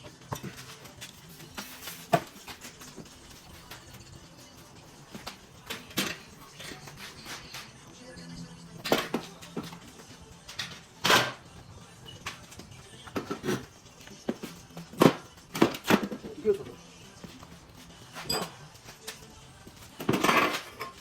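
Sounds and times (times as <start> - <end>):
metallic clanks of tools: 5.2 - 7.7, 18.2 - 18.6, 20.0 - 21.0.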